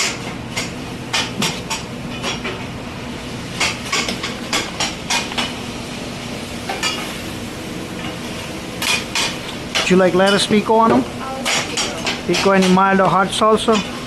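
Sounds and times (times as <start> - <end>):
kitchen equipment hum: 0.0 - 14.0
metal utensils clinking on pans: 11.4 - 12.8.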